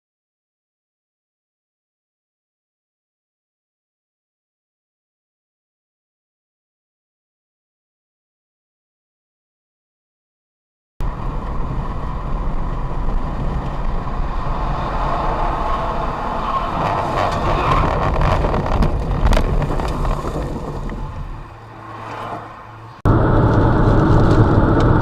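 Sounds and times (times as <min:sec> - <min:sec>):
engine and road rumble: 0:11.0 - 0:25.0
wind noise: 0:11.0 - 0:25.0.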